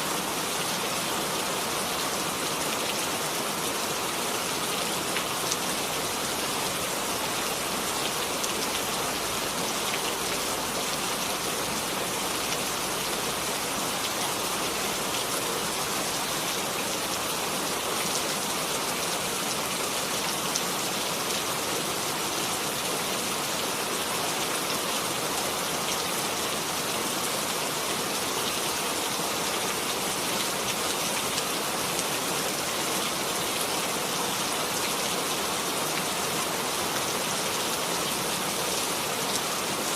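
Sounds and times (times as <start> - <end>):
rain pattering: 0.2 - 21.4.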